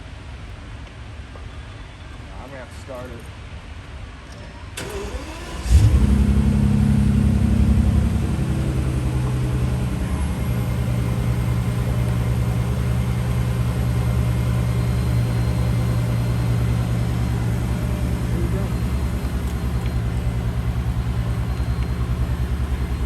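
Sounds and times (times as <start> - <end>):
car engine starting and idling: 4.8 - 23.0.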